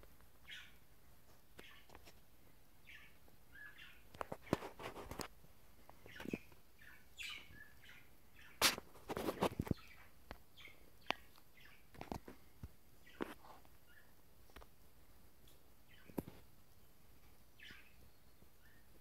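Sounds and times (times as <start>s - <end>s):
budgerigars chirping: 0.4s - 0.8s, 1.6s - 1.9s, 2.8s - 4.6s, 5.9s - 8.8s, 9.6s - 11.9s, 13.0s - 14.2s, 15.9s - 16.2s, 17.5s - 18.9s.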